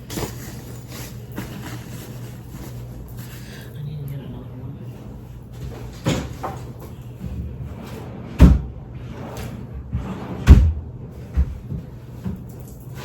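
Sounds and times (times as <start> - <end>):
furniture doors banging shut: 5.9 - 6.8, 7.8 - 11.8.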